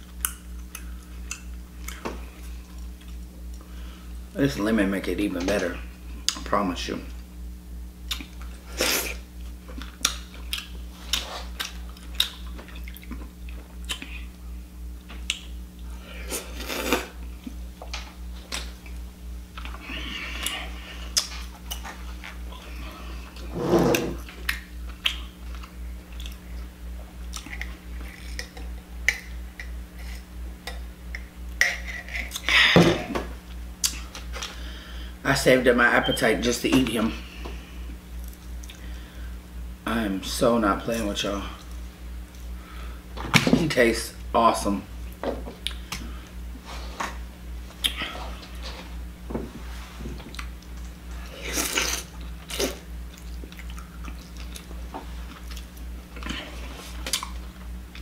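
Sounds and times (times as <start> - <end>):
person chewing: 0.0 - 3.7, 8.0 - 14.4, 15.2 - 17.6, 18.5 - 32.6, 33.5 - 34.6, 37.6 - 39.0, 47.8 - 48.7, 50.2 - 57.5
steady low hum: 0.0 - 58.0
wet mouth clicks and smacks: 24.4 - 25.3.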